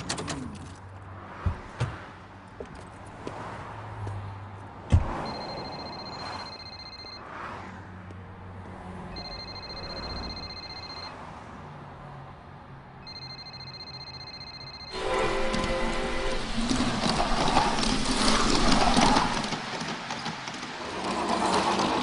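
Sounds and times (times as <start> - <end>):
electronic telephone ringer warbling: 5.3 - 7.2, 9.2 - 11.1, 13.1 - 15.0.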